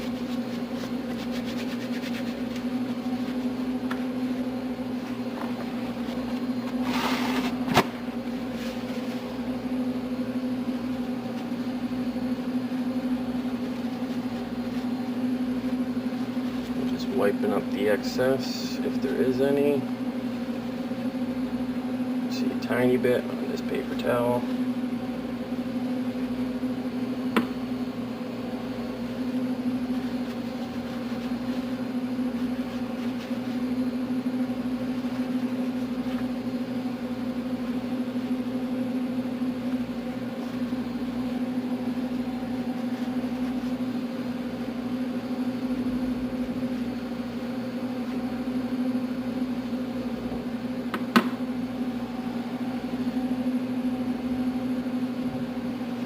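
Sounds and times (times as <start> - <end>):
steady mechanical hum: 0.0 - 56.0.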